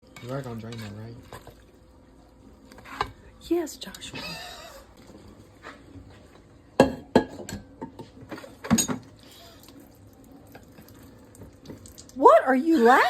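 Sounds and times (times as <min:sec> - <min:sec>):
water splashing and dripping: 0:09.4 - 0:12.4.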